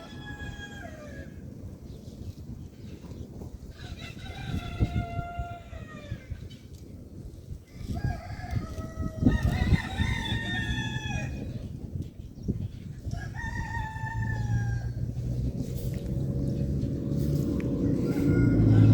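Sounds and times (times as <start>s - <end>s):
rooster crowing: 0.0s - 1.4s, 3.7s - 6.3s, 7.8s - 11.5s, 13.2s - 15.1s, 17.8s - 18.9s
low background rumble: 7.0s - 18.9s.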